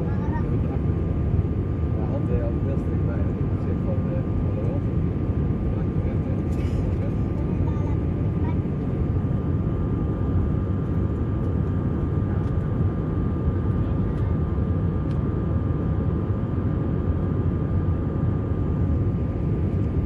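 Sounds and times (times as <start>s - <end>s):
faint steady whine: 0.0s - 20.0s
jet engines rumbling: 0.0s - 20.0s
air rushing in cabin: 3.1s - 14.3s.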